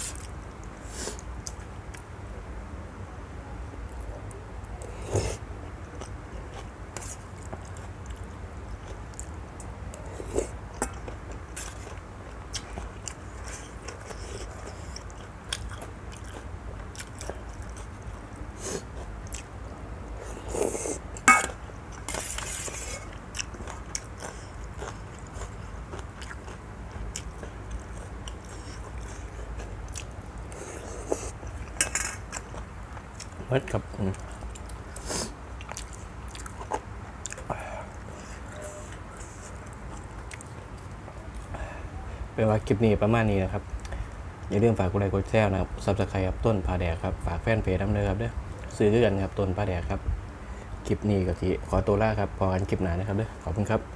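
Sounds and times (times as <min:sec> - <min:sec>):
steady low hum: 0:00.0 - 0:53.9
person chewing noodles: 0:04.8 - 0:19.5, 0:20.1 - 0:41.6.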